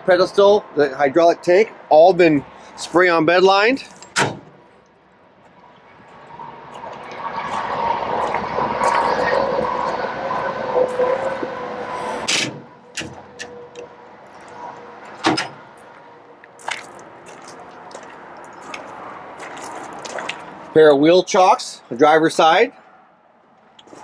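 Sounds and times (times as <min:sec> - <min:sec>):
metal door scraping: 0:08.4 - 0:13.8, 0:15.0 - 0:15.7.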